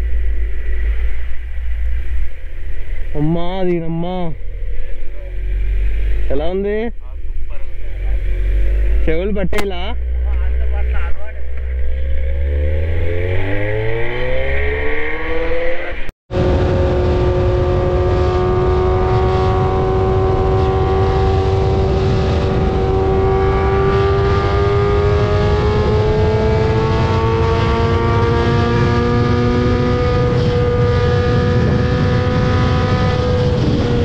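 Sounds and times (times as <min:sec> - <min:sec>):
motorcycle engine accelerating: 0:00.0 - 0:34.0
wind rumble on microphone: 0:16.3 - 0:34.0.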